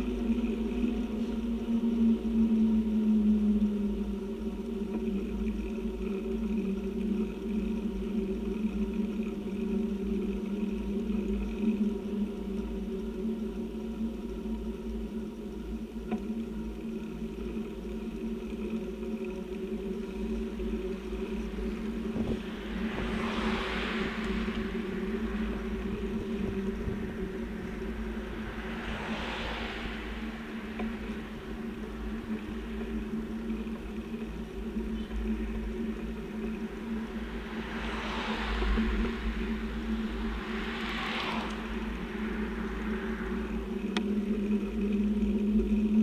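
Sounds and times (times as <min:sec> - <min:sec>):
low hum: 0:00.0 - 0:46.0
road noise rumble: 0:00.0 - 0:46.0
vehicles passing: 0:00.0 - 0:46.0.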